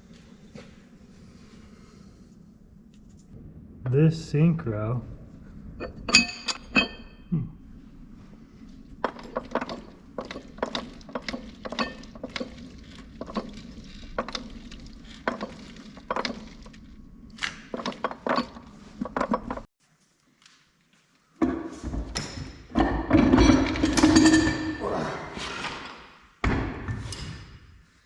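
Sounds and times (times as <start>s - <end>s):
metal gear parts clinking: 9.0s - 19.6s.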